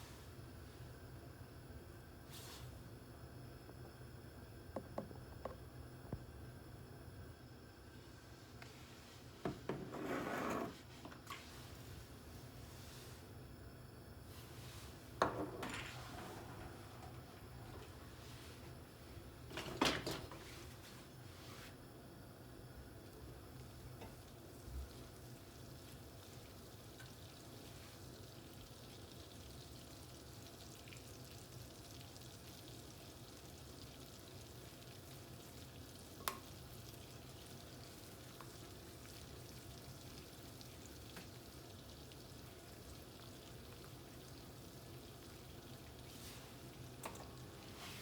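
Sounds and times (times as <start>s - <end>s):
food sizzling in a pan: 23.3s - 48.0s.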